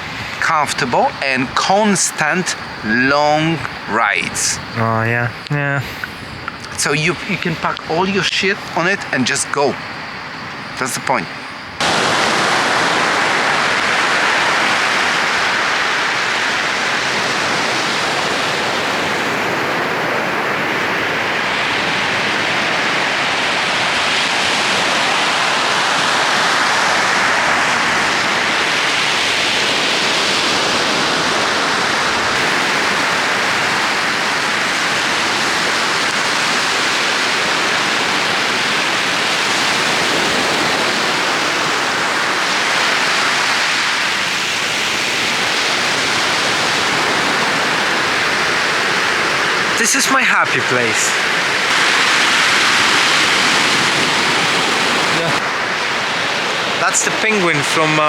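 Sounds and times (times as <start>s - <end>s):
sea surf rushing: 0.0s - 58.0s.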